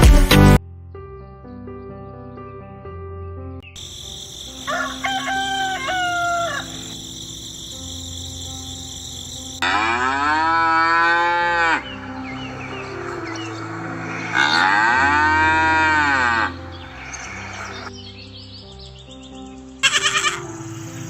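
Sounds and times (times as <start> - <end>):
soft background music: 0.4 - 21.0
rooster crowing: 4.3 - 7.3, 9.6 - 17.9
cow mooing: 9.6 - 17.9.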